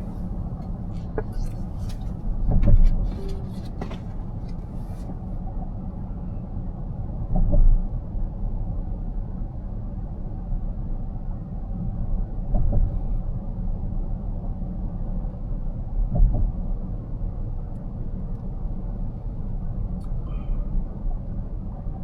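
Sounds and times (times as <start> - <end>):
car road noise rumble: 0.0 - 5.5.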